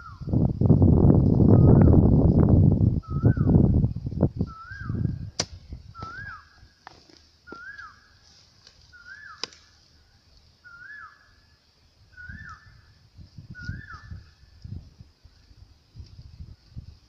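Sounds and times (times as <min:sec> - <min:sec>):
bird whistled call: 0:03.0 - 0:03.6, 0:04.4 - 0:06.6, 0:07.5 - 0:08.2, 0:08.9 - 0:09.7, 0:10.6 - 0:11.5, 0:12.1 - 0:14.4.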